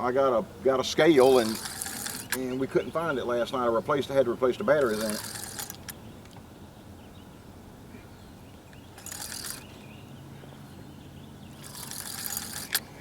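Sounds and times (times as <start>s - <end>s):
rattling ratchet-like clicking: 1.2s - 2.5s, 4.8s - 6.0s, 9.0s - 9.7s, 11.6s - 12.8s.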